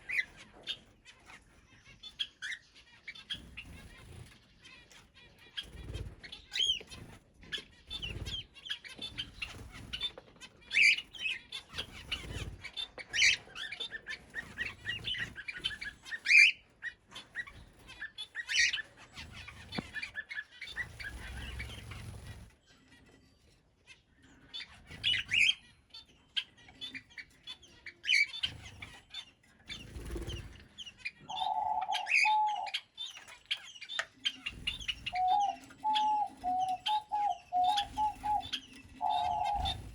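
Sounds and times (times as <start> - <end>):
birds chirping and calling: 0.0 - 39.9
low steady bird call: 0.0 - 39.9
wings flapping: 11.8 - 13.4, 20.7 - 22.5, 29.7 - 30.7, 34.4 - 39.9.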